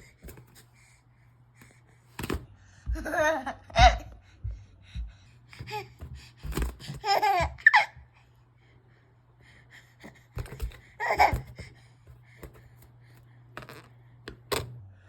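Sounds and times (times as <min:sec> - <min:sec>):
baby laughing: 0:06.8 - 0:08.1, 0:11.0 - 0:11.6.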